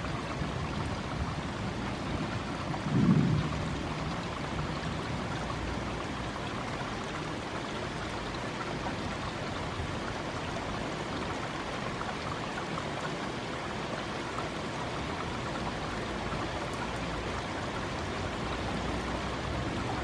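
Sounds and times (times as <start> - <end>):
heavy rain: 0.0 - 6.9.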